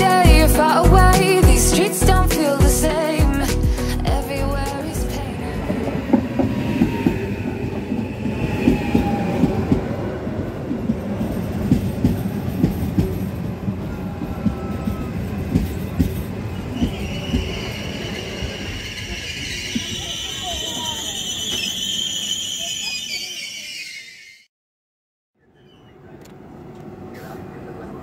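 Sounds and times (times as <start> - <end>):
train rumble: 0.0 - 23.0
train wheels clacking over rail joints: 10.8 - 17.7
wheel and brake squeal: 14.6 - 24.5.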